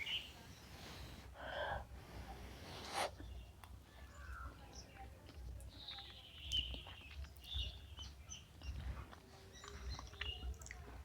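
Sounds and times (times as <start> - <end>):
birds chirping faintly: 0.0 - 1.2.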